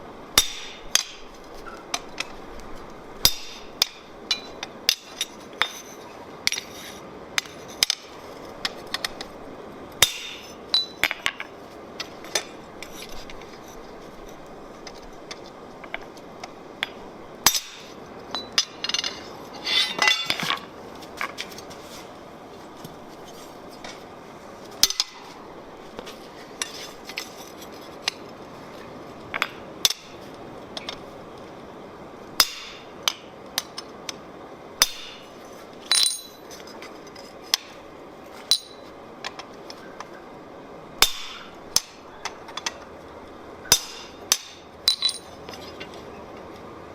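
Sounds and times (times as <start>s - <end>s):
steady hiss: 0.0s - 46.9s
hammer striking steel on anvil: 0.4s - 1.3s, 3.2s - 5.7s, 10.0s - 10.9s, 32.4s - 33.2s, 34.8s - 35.3s, 35.9s - 36.4s, 38.5s - 38.8s, 41.0s - 42.0s, 43.7s - 45.3s.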